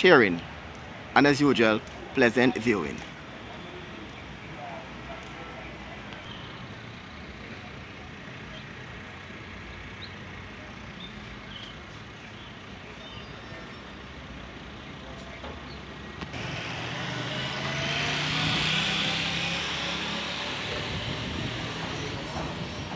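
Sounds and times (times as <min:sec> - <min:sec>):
vehicle engine: 0:01.7 - 0:22.9.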